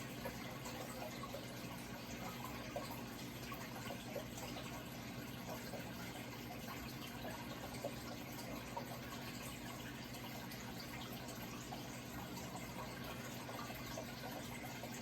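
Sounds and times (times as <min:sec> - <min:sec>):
water trickling and bubbling: 0:00.0 - 0:15.0.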